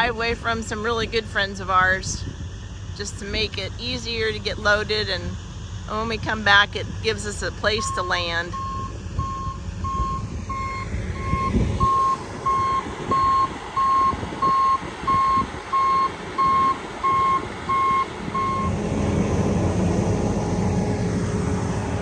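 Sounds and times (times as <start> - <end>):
heavy vehicle engine running: 0.0 - 22.0
backup alarm beeping: 7.7 - 18.8.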